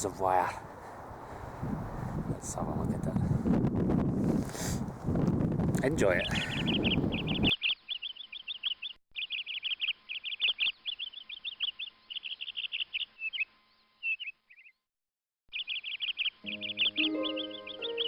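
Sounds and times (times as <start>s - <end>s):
songbird chirping and trilling: 6.2s - 14.8s, 15.5s - 18.0s.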